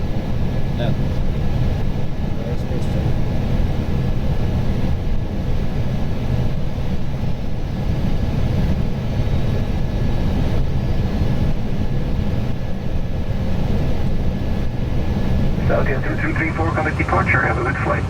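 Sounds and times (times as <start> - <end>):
airflow and engine rumble: 0.0 - 18.0
faint high whine: 15.6 - 18.0.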